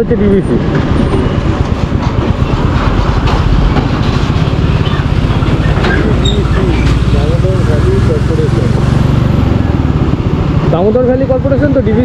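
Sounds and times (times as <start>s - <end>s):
wind noise on microphone: 0.0s - 7.2s
motorcycle engine running: 0.9s - 12.0s.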